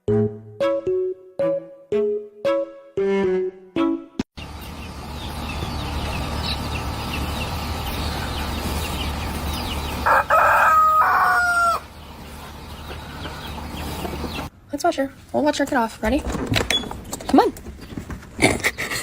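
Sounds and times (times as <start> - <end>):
rooster crowing: 9.6 - 12.0.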